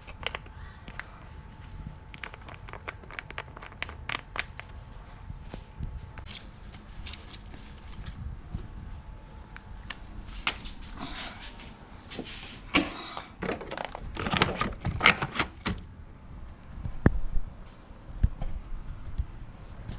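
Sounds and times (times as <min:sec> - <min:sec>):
hard objects clicking and knocking: 0:02.1 - 0:04.8, 0:12.8 - 0:15.8.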